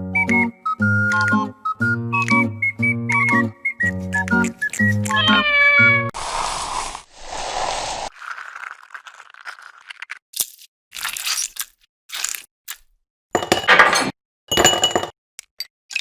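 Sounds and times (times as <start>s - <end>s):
kitchen utensils and dishes clinking: 13.4s - 15.1s.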